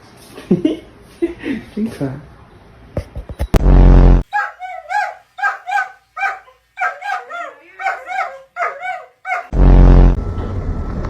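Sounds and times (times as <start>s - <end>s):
loud low buzz: 3.6s - 4.2s, 9.5s - 10.4s
steady hum: 3.6s - 4.2s, 9.5s - 10.2s
small dog yelping: 4.2s - 9.5s.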